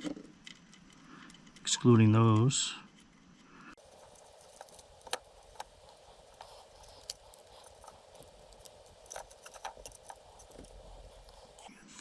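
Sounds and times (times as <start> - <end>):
small parts clicking and tapping: 3.8 - 11.7
steady low hiss: 3.8 - 11.7.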